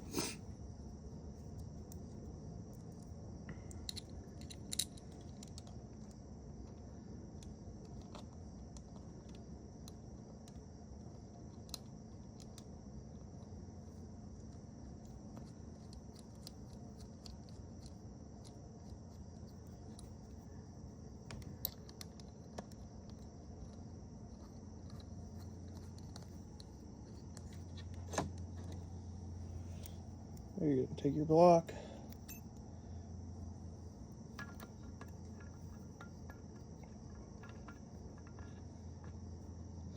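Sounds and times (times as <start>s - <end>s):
shop hum with high whine: 0.0s - 39.9s
hand tools tapping metal parts: 31.8s - 32.5s.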